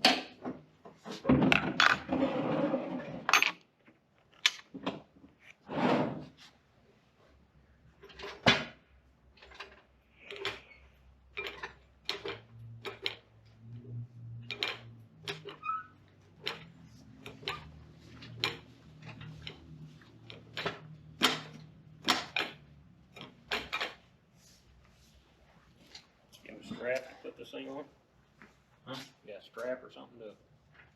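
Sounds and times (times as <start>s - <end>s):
sharp clicks and knocks: 11.3s - 24.1s.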